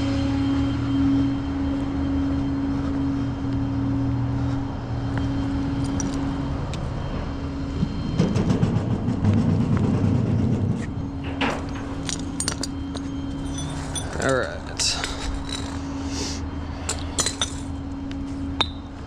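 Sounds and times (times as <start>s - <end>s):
tow truck engine running: 0.0s - 19.0s.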